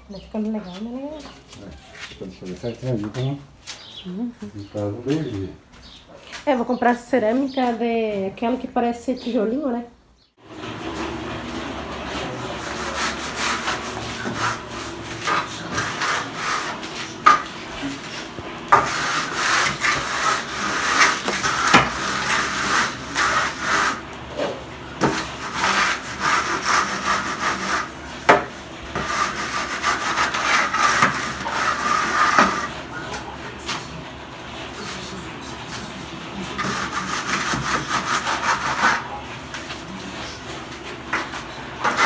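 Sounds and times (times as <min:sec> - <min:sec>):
trowel scraping mortar on brick: 0:12.3 - 0:24.1, 0:25.0 - 0:33.3, 0:36.5 - 0:42.0.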